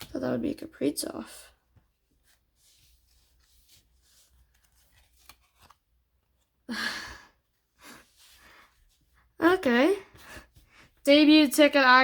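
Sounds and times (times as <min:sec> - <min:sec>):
breathy sigh: 0:06.7 - 0:07.4
small breath: 0:06.7 - 0:09.0.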